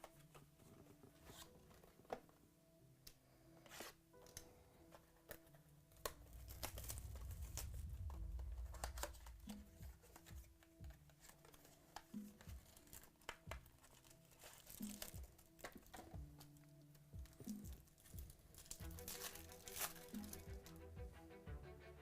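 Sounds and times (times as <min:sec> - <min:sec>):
faint background music: 0:00.0 - 0:22.0
card wrappers crinkling and tearing: 0:05.2 - 0:20.8
low handling rumble: 0:06.2 - 0:10.6.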